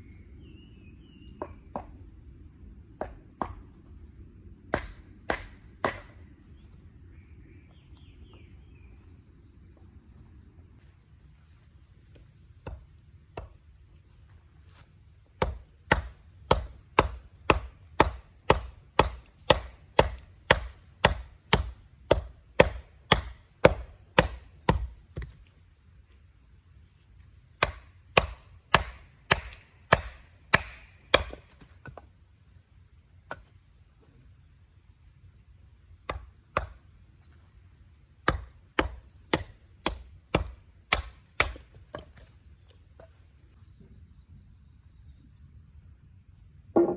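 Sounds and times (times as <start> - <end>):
axe chopping firewood: 3.0 - 3.7, 4.7 - 6.2, 12.6 - 13.7, 15.3 - 25.4, 27.6 - 32.1, 33.2 - 33.5, 36.0 - 36.9, 38.2 - 42.3.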